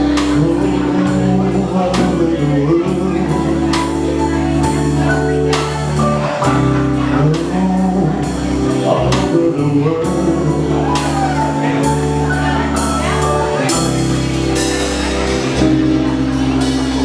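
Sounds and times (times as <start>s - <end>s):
live band playing soul ballad: 0.0s - 17.0s.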